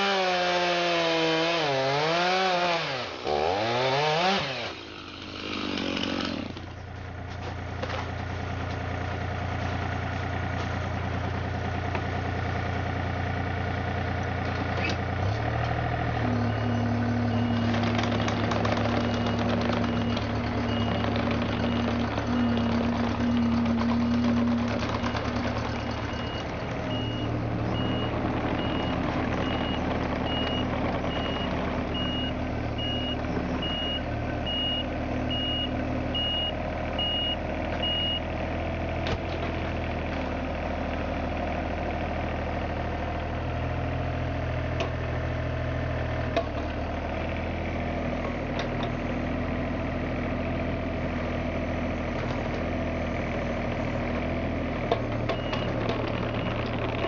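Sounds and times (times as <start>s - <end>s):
excavator diesel engine running: 1.9s - 57.0s
warning alarm beeping: 16.3s - 18.4s, 19.0s - 31.4s.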